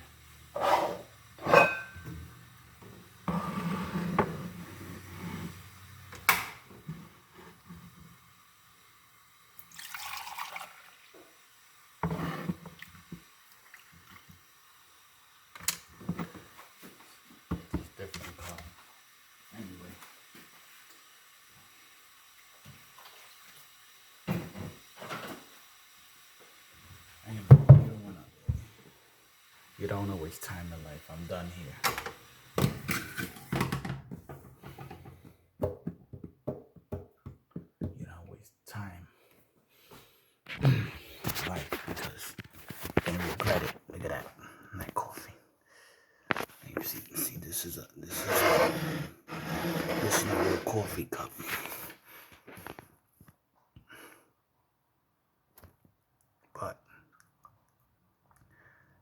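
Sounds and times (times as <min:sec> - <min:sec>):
rough rubbing noise: 0:00.6 - 0:01.6, 0:48.1 - 0:51.0
kitchen clatter: 0:00.6 - 0:02.2
cup clinking: 0:01.4 - 0:02.1.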